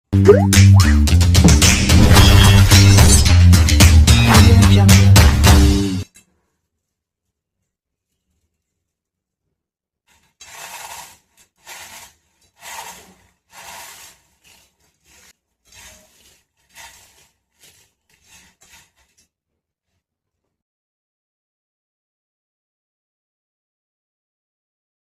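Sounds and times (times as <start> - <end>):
rasping scraping strokes: 1.4 - 4.6, 10.1 - 19.3.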